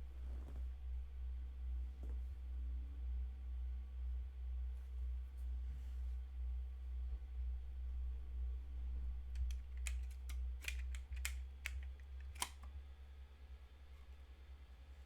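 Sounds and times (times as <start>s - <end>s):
sharp clicks: 9.4s - 12.8s.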